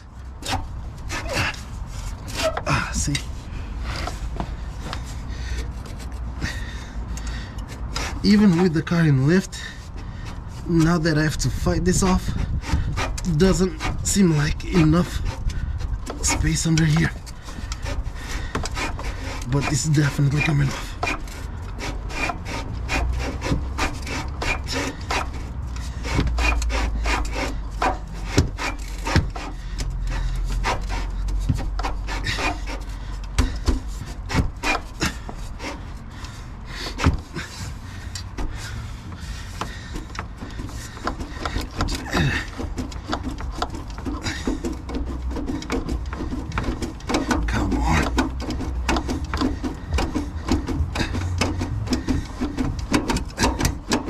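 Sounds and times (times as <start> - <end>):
exhaust tip scraping on pipe: 0.0 - 54.0
sharp clicks and knocks: 11.9 - 54.0.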